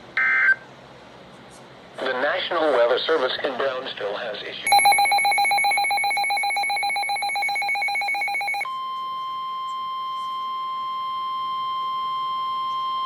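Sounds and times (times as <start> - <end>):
rapid electronic alarm beeping: 4.7 - 8.7
steady alarm tone: 4.7 - 13.0.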